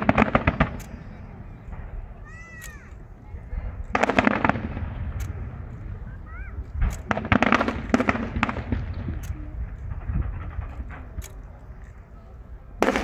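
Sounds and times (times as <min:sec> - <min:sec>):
fireworks crackling bangs: 0:00.0 - 0:13.0
low rumble: 0:03.0 - 0:12.8.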